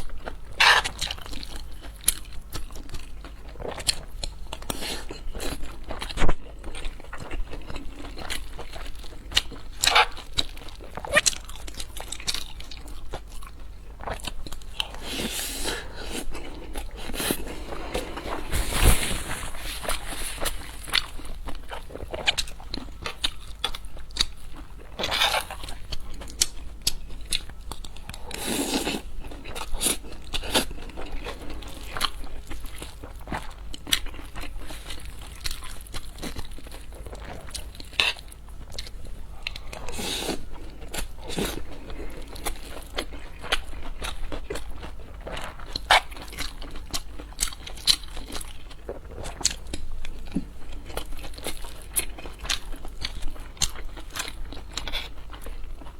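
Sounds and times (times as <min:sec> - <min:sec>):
crunchy chewing of food: 0:00.0 - 0:55.9.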